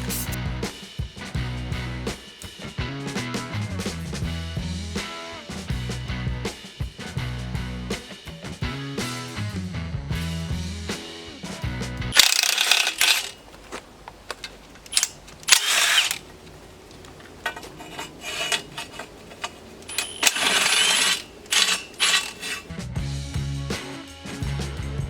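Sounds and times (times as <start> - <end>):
metal tools clinking and rattling: 12.2 - 22.7
sharp clicks: 12.2 - 22.7.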